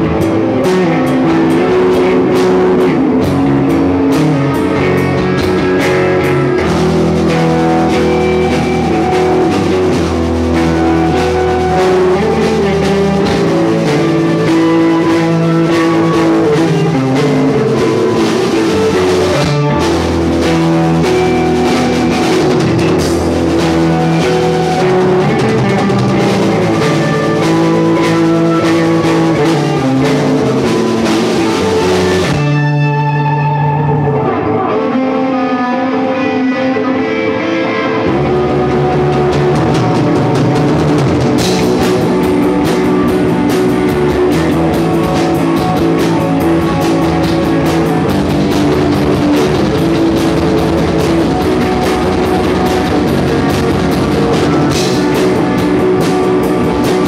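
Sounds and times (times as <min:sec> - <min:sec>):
rock band playing: 0:00.0 - 0:57.0.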